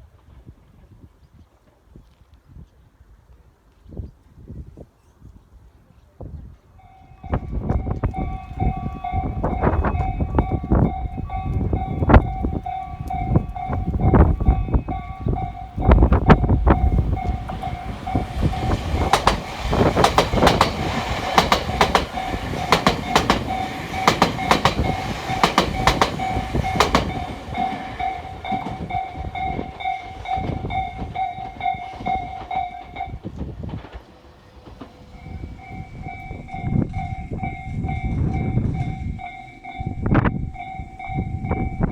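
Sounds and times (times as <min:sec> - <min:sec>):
wind buffeting microphone: 0:03.8 - 0:41.9
electric train passing: 0:06.7 - 0:41.9
warning bell ringing: 0:06.8 - 0:33.2, 0:35.1 - 0:41.9
train wheels clicking over rail joints: 0:07.8 - 0:41.1.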